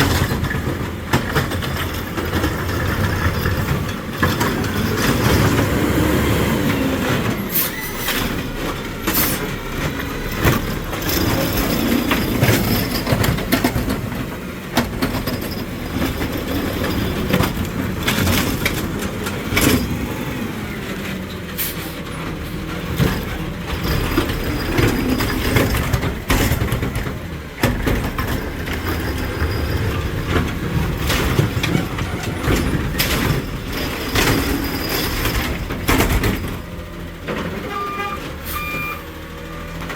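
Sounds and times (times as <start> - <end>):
diesel engine running: 0.0 - 39.9
hydraulic whine: 5.2 - 12.9
metal clanks and bangs: 7.2 - 20.2, 21.3 - 38.4.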